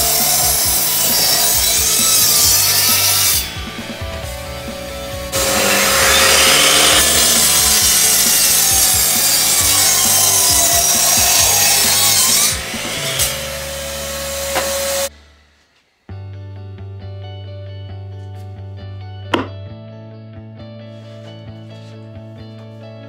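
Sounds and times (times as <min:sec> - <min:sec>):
mitre saw cutting wood: 0:00.0 - 0:15.1
saw motor whine: 0:00.2 - 0:15.5.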